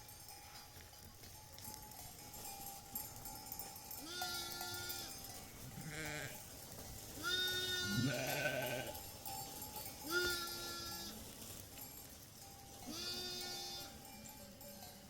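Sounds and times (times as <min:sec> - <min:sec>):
sheep and goats bleating: 0:03.5 - 0:11.5, 0:12.6 - 0:15.0.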